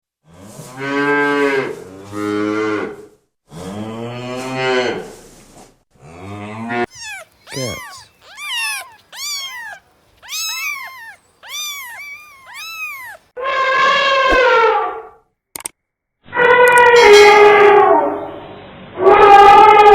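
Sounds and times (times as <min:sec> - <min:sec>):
higher steady animal call: 0:06.7 - 0:13.3
short high animal calls: 0:06.8 - 0:13.3.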